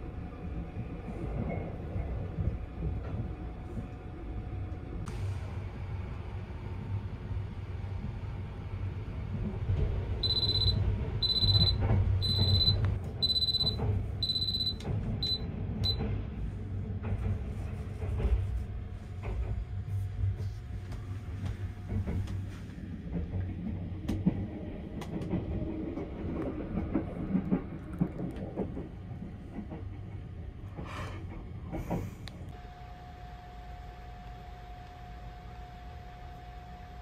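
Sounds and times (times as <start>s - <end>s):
train rumble from inside: 0.0s - 37.0s
high beep: 10.2s - 16.0s
track clicks: 10.2s - 16.1s.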